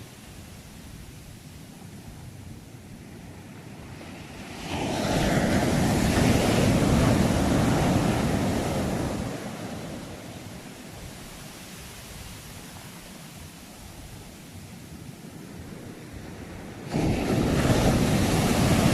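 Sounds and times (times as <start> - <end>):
surf hissing: 4.2 - 18.9
wave breaking: 16.8 - 18.9.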